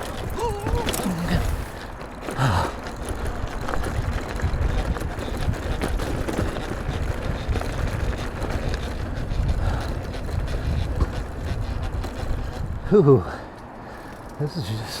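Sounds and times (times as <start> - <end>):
bike rattles and knocks: 0.0 - 15.0
tyres rumbling on dirt: 0.0 - 15.0
wind on microphone: 3.2 - 13.0.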